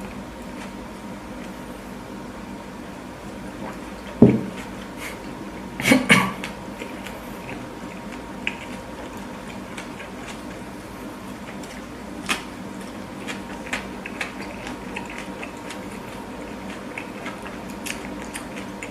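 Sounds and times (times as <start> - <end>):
chewing with wet mouth clicks: 0.0 - 1.6, 6.3 - 18.9.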